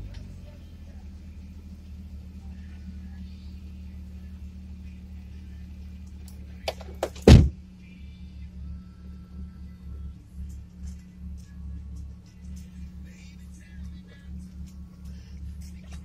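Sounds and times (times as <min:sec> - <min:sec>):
car engine idling: 0:00.0 - 0:16.0
loud heavy thump: 0:07.1 - 0:07.6.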